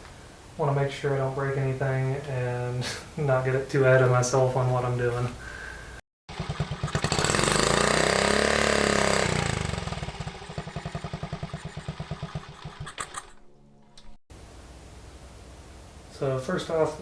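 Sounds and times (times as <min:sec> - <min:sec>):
engine revving: 0:06.3 - 0:13.4.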